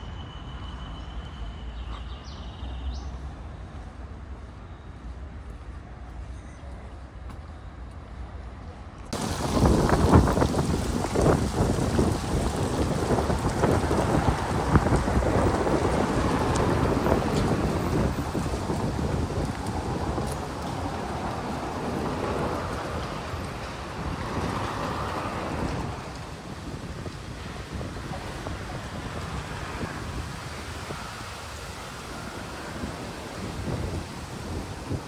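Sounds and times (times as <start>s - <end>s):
wind buffeting microphone: 9.2s - 35.0s.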